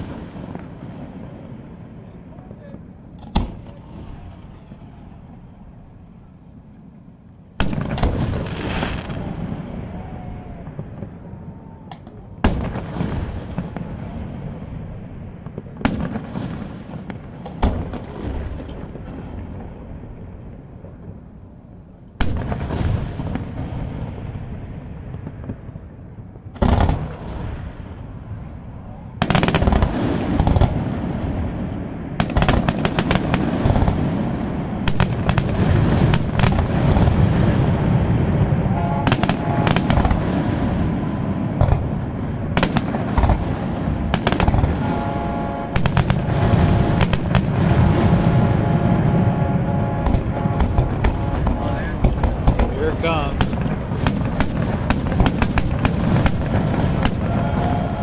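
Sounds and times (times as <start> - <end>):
rapid firework bangs and crackling: 0.0 - 5.4, 7.6 - 21.3, 22.2 - 58.0
firework shell booms: 3.2 - 4.5, 7.6 - 11.2, 26.6 - 28.0, 29.2 - 57.9.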